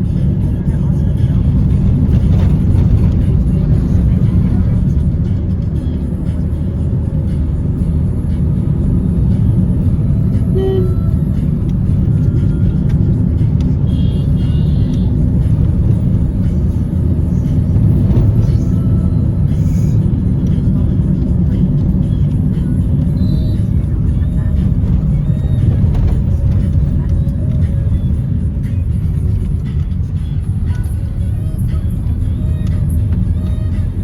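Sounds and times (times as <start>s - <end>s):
vehicle rumbling in motion: 0.0s - 34.0s.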